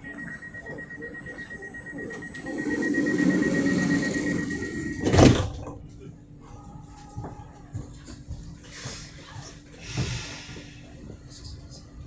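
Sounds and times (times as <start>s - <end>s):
high whine: 0.0s - 5.9s
train running noise: 0.0s - 5.9s, 9.8s - 11.5s.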